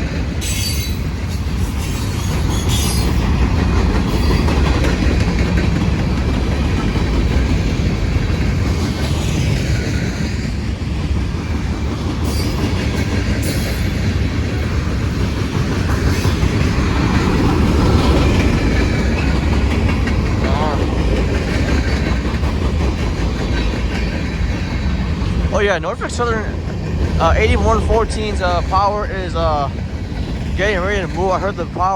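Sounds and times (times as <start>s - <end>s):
freight train rolling past: 0.0s - 31.9s
wheels clicking over rail joints: 0.1s - 27.4s
faint high wheel squeals: 0.4s - 3.2s.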